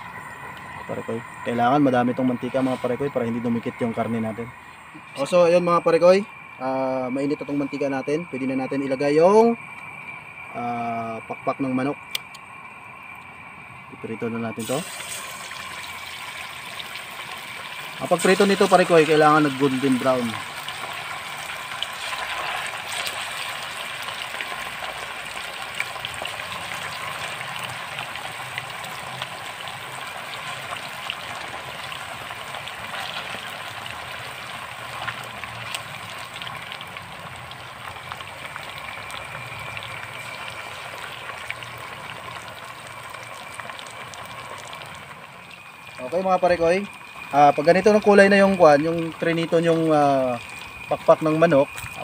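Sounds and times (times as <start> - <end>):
chicken deep-frying in oil: 0.0 - 52.0
oil popping and crackling: 14.6 - 52.0.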